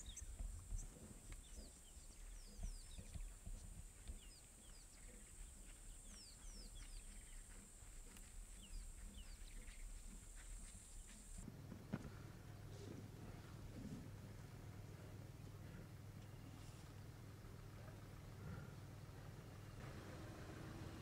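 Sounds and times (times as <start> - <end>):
birds chirping: 0.0 - 13.9.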